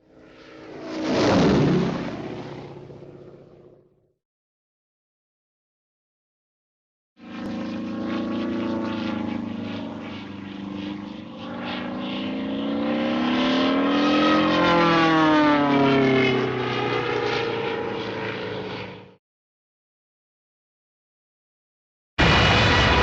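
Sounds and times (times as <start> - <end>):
propeller airplane flying past: 0.0 - 4.1, 7.2 - 19.2.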